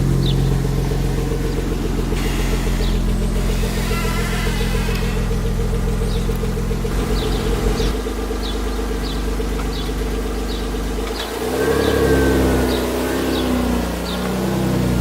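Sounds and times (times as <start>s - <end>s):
car engine idling: 0.0s - 15.0s
faint high squeak: 3.4s - 5.4s.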